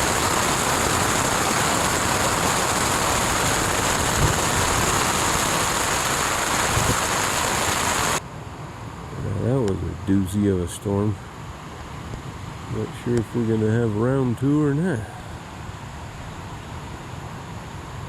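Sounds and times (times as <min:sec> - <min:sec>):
heavy rain: 0:00.0 - 0:08.2.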